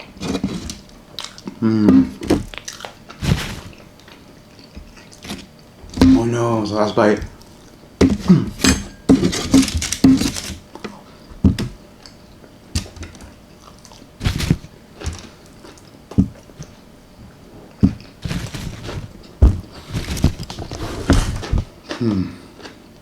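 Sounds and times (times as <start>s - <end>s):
chewing and wet mouth sounds: 1.1s - 1.6s, 2.5s - 5.7s, 13.5s - 14.2s, 14.9s - 16.8s, 21.8s - 22.9s.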